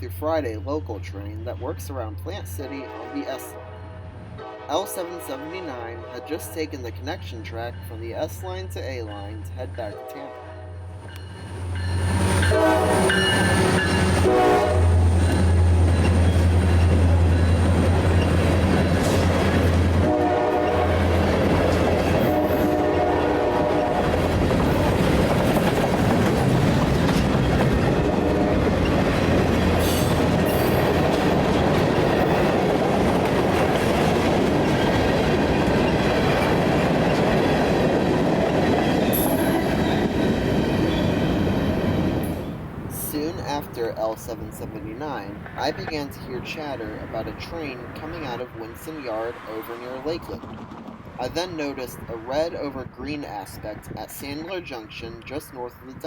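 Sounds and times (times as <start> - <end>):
diesel locomotive engine rumble: 0.0 - 56.0
train horn blasts: 2.6 - 6.6, 9.9 - 11.0, 12.3 - 15.4, 19.9 - 21.4, 22.0 - 24.1, 27.9 - 28.7
train wheels clacking on rails: 24.0 - 42.4.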